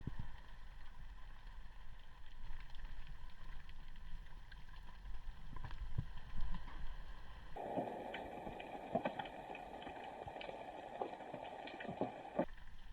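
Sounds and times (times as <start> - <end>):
faint clicks and crackles: 0.0 - 12.9
low rumble of moving water: 0.0 - 12.9.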